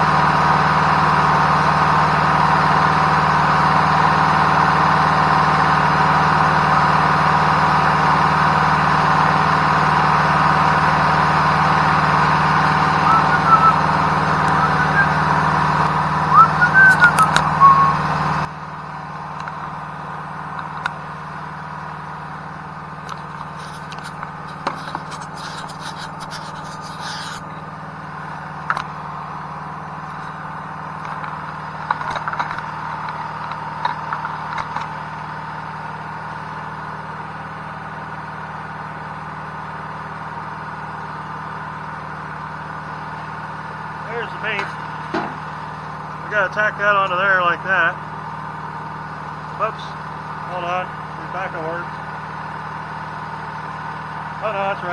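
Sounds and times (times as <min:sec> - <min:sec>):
generator engine running: 0:00.0 - 0:54.9
clicks: 0:16.6 - 0:17.7.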